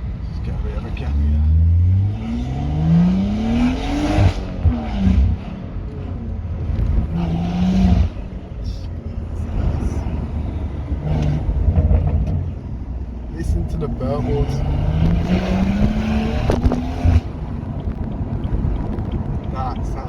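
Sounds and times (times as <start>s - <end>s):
car engine revving: 0.0s - 20.0s
exhaust burbling and popping: 10.9s - 12.7s, 13.4s - 20.0s.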